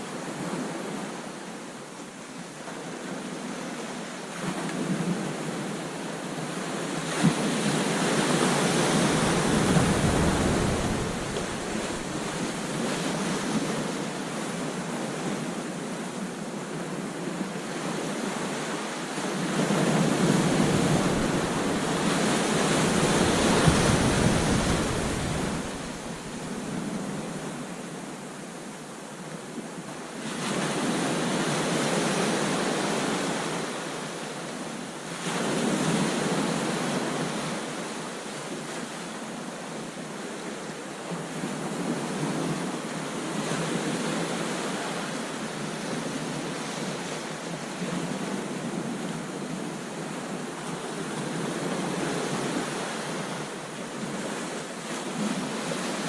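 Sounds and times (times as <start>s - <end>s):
wind on microphone: 4.4s - 15.6s, 19.2s - 27.7s
ocean waves crashing: 6.6s - 15.1s, 18.4s - 27.4s.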